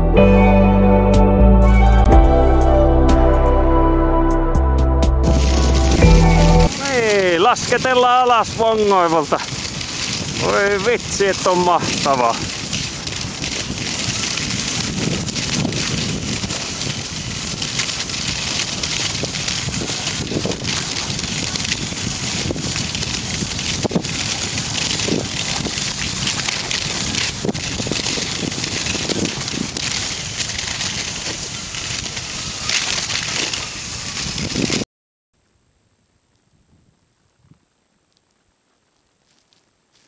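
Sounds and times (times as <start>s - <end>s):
wind rushing over microphone: 5.2s - 34.8s
skis scraping over crusty snow: 5.3s - 34.8s, 38.8s - 40.0s.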